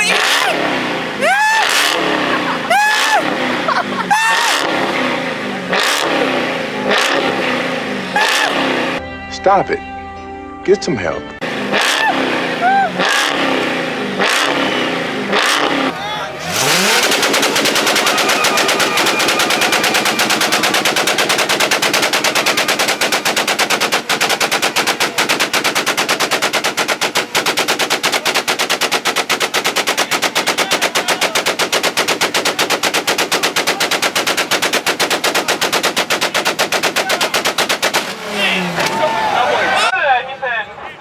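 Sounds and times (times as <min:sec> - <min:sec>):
car engine on rev limiter: 0:00.0 - 0:09.0, 0:11.4 - 0:25.4, 0:37.0 - 0:39.9.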